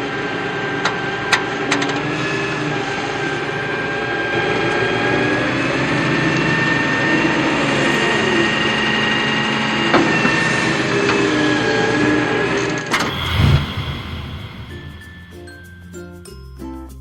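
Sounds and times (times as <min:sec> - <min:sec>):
sharp click: 0:12.9 - 0:15.4.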